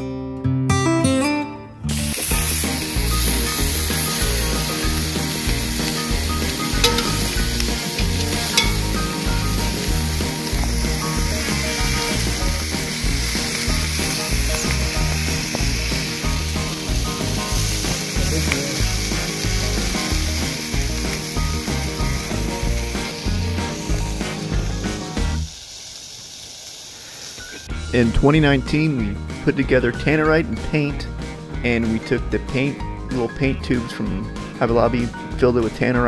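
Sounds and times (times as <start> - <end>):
sausages sizzling in a skillet: 1.8 - 27.9.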